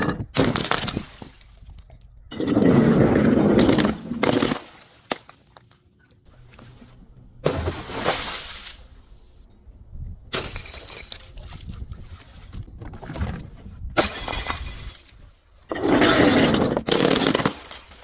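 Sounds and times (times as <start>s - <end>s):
glass crushing and shattering: 0.0s - 5.6s, 10.3s - 11.5s, 14.0s - 18.0s.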